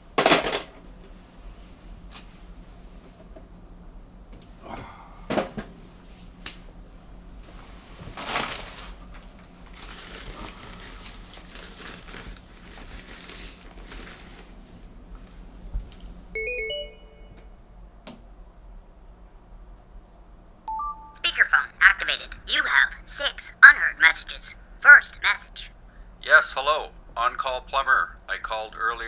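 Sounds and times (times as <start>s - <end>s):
rustling and handling noises: 7.4s - 15.4s
mobile phone beeps: 16.4s - 17.4s, 20.7s - 21.5s.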